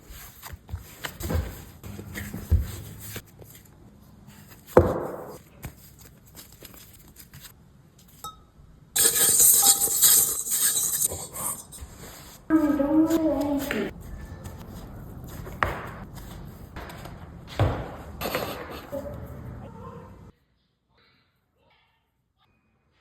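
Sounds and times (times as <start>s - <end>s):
utensils and bowl clinking: 8.2s - 11.9s.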